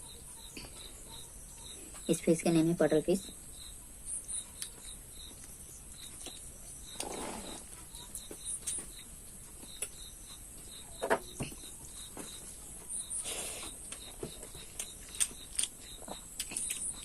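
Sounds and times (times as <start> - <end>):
insects chirping: 0.0 - 17.0
food being chewed: 4.4 - 10.8, 11.4 - 17.0.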